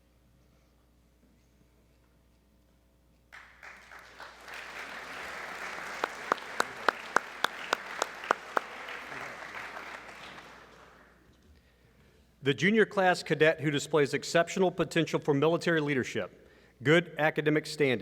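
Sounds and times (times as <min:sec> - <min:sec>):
audience applause in a hall: 0:03.3 - 0:11.2
loud close hand claps: 0:03.3 - 0:11.2.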